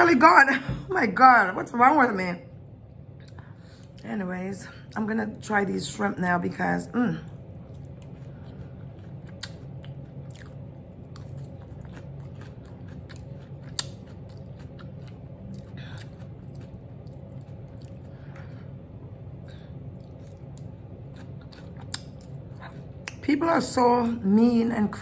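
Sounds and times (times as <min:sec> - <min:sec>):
steady low hum: 0:00.0 - 0:25.0
person chewing food: 0:07.3 - 0:23.2.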